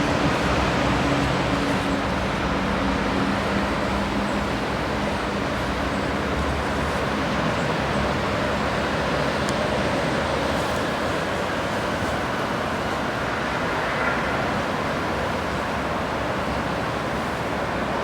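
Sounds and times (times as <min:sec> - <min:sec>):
steady rushing noise: 0:11.0 - 0:17.8.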